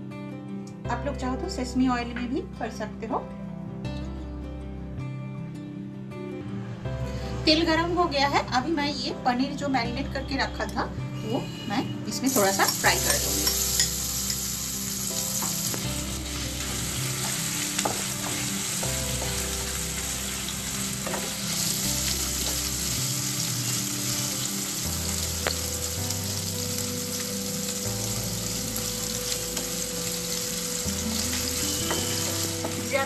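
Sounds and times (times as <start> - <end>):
cheese sizzling in hot oil: 12.2 - 33.0.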